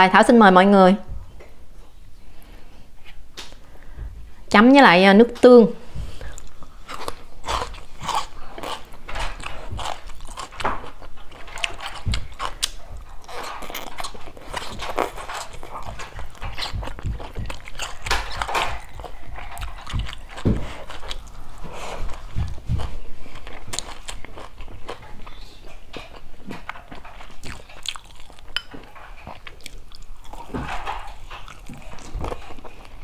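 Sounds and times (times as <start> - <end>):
wet crackly mouth sounds: 6.2 - 33.0
crisp bites and chewing: 6.4 - 21.4.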